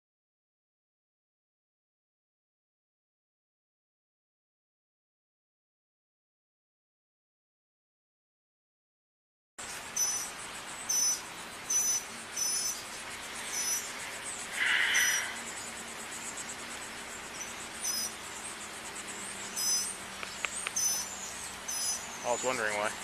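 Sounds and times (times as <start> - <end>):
faint high hiss: 9.6 - 23.0.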